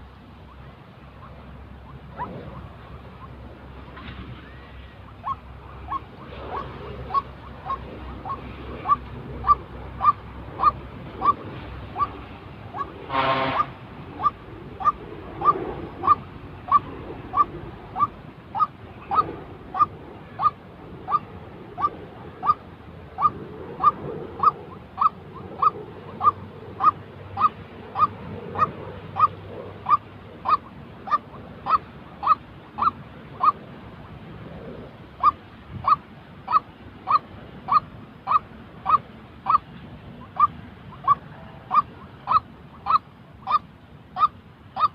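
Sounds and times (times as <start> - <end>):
bird calling short rising notes: 4.3 - 11.4.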